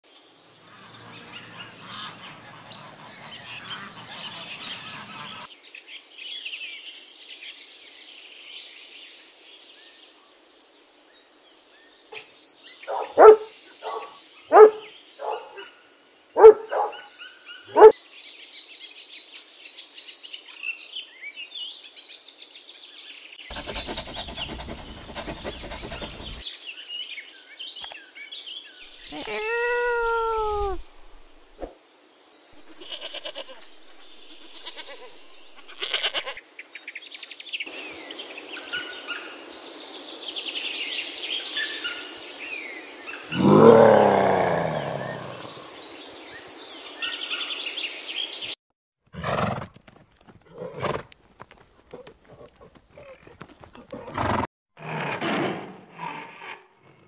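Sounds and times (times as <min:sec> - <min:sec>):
birds chirping and twittering: 0:00.1 - 0:15.8, 0:16.4 - 0:19.8, 0:22.7 - 0:31.7, 0:32.4 - 0:48.6
puppy yelping barks: 0:12.9 - 0:15.6, 0:16.4 - 0:17.1, 0:17.7 - 0:18.0.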